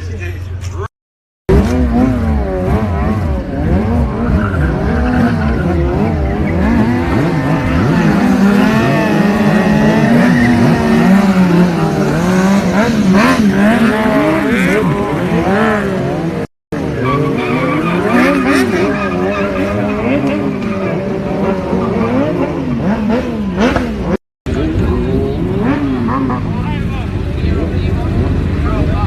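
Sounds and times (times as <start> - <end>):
motorcycle engines revving: 1.5 - 29.0.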